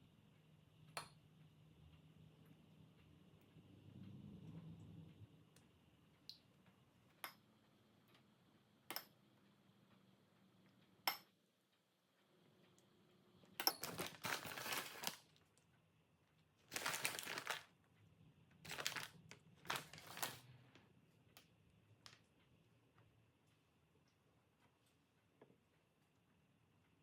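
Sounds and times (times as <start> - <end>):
crinkling and rustling: 13.8 - 15.8, 16.4 - 17.9, 18.5 - 22.6.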